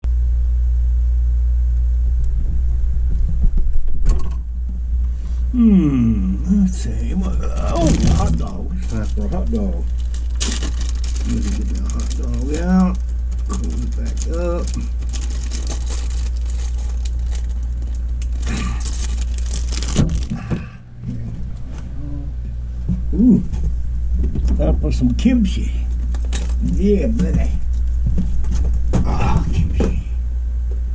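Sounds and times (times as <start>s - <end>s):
refrigerator humming: 0.0s - 30.9s
knocks and rustling: 22.8s - 25.0s, 25.9s - 30.1s.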